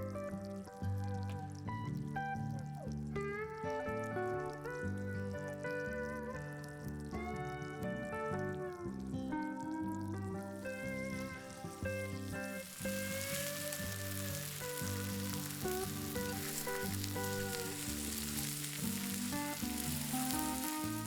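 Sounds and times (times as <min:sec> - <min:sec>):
background music: 0:00.0 - 0:21.0
meat sizzling on griddle: 0:10.6 - 0:21.0.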